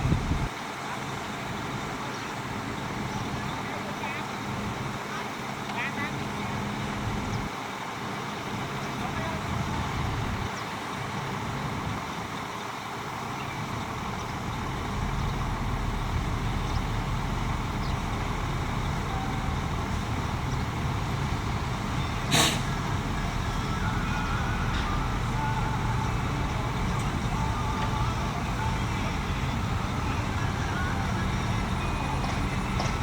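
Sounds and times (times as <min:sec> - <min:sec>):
heavy diesel machinery running: 0:00.0 - 0:33.0
short sharp burst of noise: 0:22.2 - 0:22.9.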